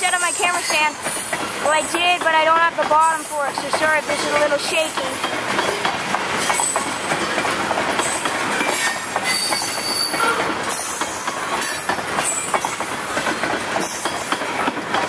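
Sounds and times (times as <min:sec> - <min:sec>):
train wheels rumbling and clacking: 0:00.0 - 0:15.0
high-pitched wheel squeals: 0:08.8 - 0:12.5.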